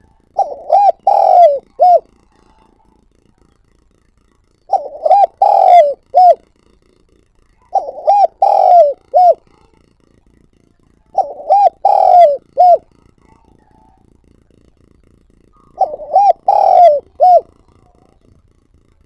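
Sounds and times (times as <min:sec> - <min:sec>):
dove cooing: 0:00.0 - 0:03.8, 0:04.6 - 0:06.7, 0:07.4 - 0:19.0.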